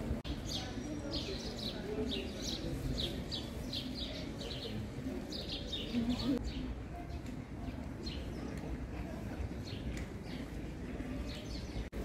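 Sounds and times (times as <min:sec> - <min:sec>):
murmur of voices: 0:00.0 - 0:12.0
small birds chirping: 0:00.2 - 0:08.8.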